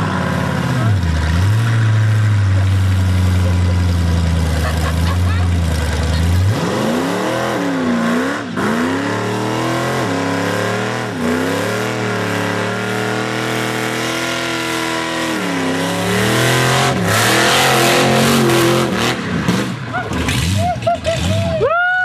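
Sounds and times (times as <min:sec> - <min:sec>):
engine revving hard: 0:05.7 - 0:21.5.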